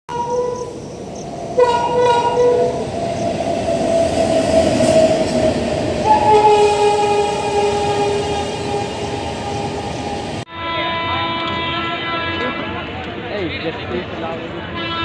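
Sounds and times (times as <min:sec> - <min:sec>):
train horn blasts: 0:00.1 - 0:00.7, 0:01.6 - 0:02.8, 0:06.0 - 0:12.8, 0:14.7 - 0:15.0
passing train rumble: 0:00.1 - 0:15.0.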